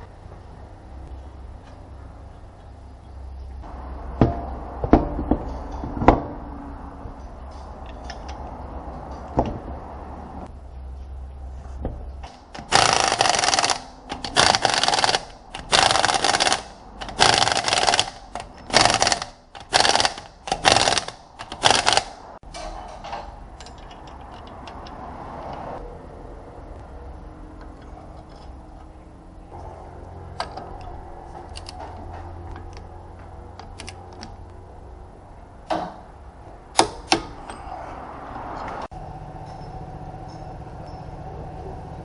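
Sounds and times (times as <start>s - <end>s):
sharp metallic knocks: 4.1s - 6.5s.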